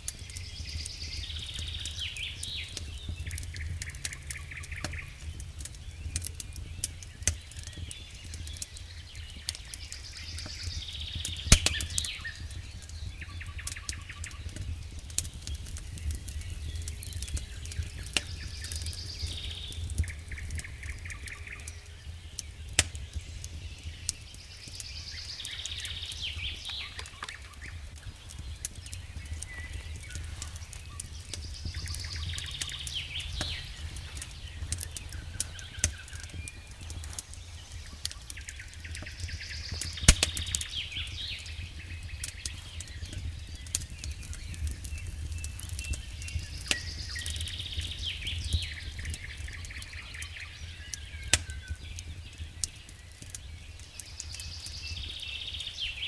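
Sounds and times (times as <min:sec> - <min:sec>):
steady low rumble: 0:00.0 - 0:07.2, 0:25.0 - 0:49.6
campfire crackling and popping: 0:00.0 - 0:56.0
small birds chirping: 0:00.0 - 0:56.0.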